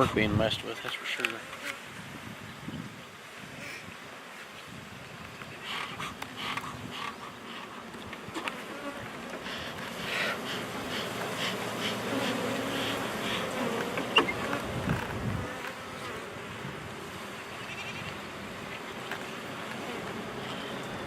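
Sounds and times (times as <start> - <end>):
honey bees buzzing: 5.6 - 21.0.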